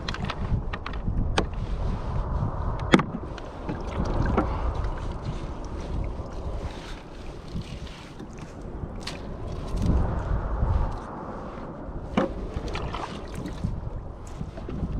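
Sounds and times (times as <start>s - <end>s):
wind rumble on microphone: 0.0s - 14.9s
water sloshing against kayak hull: 2.8s - 10.2s, 12.0s - 14.9s.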